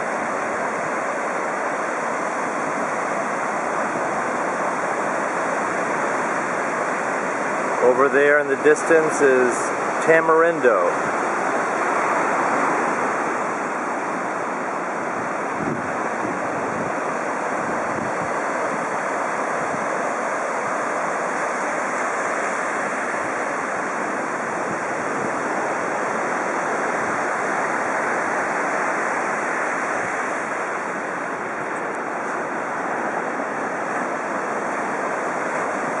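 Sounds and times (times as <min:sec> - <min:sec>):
ocean surf breaking: 0:00.0 - 0:36.0
wind buffeting microphone: 0:10.9 - 0:21.4, 0:22.8 - 0:36.0.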